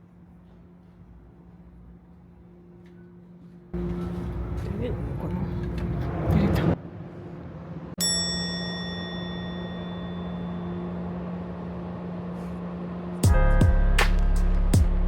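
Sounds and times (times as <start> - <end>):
steady low hum: 0.0 - 15.0
high bell-like ding: 8.0 - 11.0.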